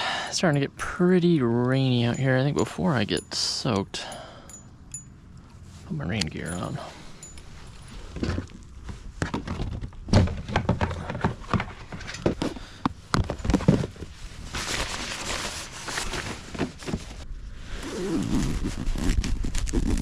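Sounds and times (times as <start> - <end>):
knocks and thunks: 9.2 - 12.5
fabric rustling: 13.3 - 17.3.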